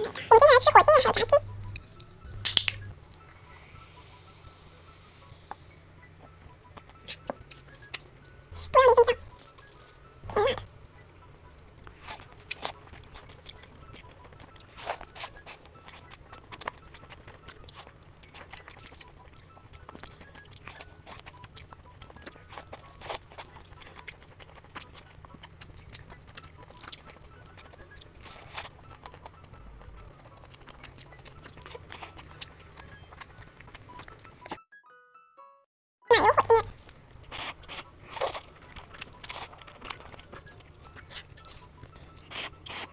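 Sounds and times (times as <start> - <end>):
chewing and crunching: 0.0 - 3.5, 5.4 - 34.6, 36.1 - 42.9
low steady hum: 0.0 - 14.0.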